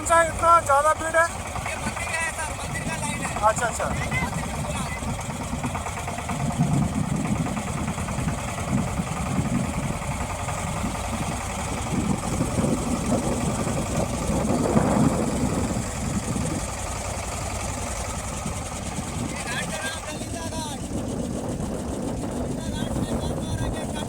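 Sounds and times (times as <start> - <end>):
boat motor rumbling: 0.0 - 24.0.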